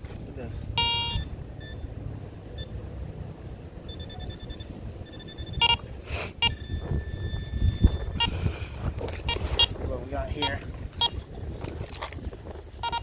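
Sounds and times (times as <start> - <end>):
metal detector beeping: 0.8 - 1.9, 3.8 - 12.1, 12.8 - 13.0
wind rumble on microphone: 3.4 - 13.0.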